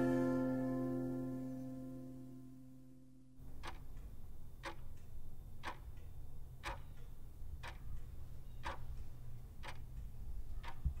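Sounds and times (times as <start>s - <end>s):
low steady hum: 0.0s - 11.0s
clock ticking: 3.4s - 11.0s.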